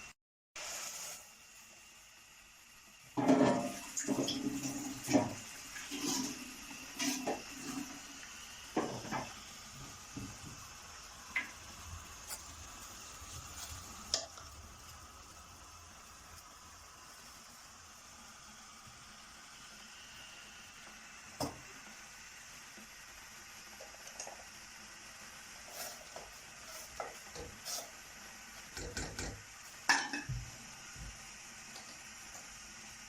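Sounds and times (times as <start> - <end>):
steady hiss: 0.6 - 33.0
kitchenware clattering: 3.2 - 4.4, 28.8 - 30.3.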